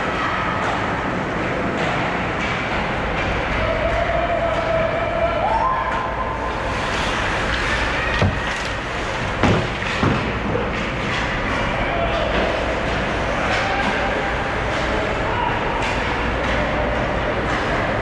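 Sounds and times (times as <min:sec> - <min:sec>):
arena noise: 0:00.0 - 0:18.0
sharp knocks: 0:09.4 - 0:10.7.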